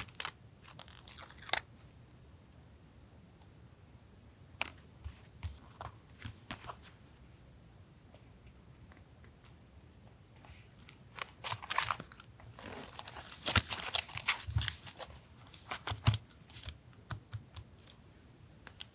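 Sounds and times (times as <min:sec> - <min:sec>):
paper rustling and crinkling: 0:10.8 - 0:16.8.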